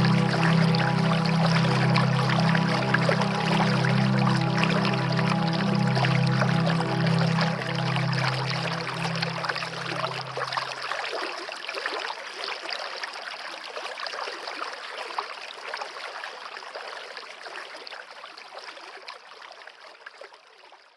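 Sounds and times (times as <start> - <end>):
low background music notes: 0.0 - 10.8
stream running water: 0.0 - 20.9.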